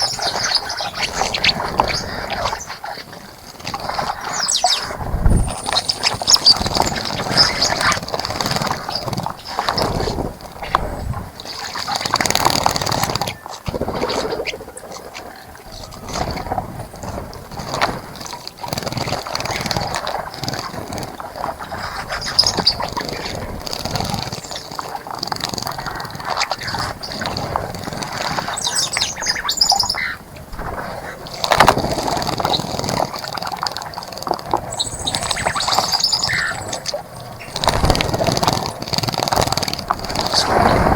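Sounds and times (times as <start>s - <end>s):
bird chirps and calls: 0.0s - 2.7s, 4.2s - 8.0s, 22.0s - 23.2s, 28.3s - 30.2s, 34.6s - 37.8s
birds splashing in water: 0.0s - 40.9s.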